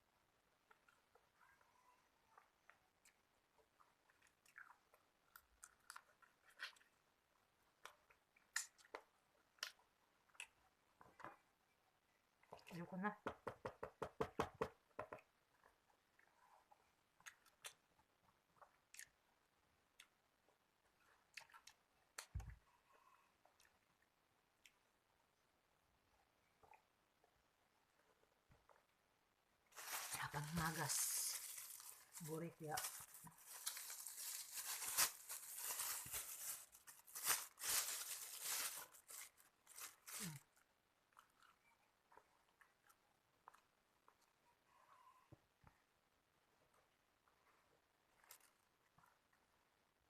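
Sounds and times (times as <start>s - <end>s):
chewing and mouth clicks: 2.6s - 7.0s, 7.7s - 10.6s, 17.1s - 19.2s, 21.0s - 22.3s
food packaging crinkling: 29.7s - 40.6s.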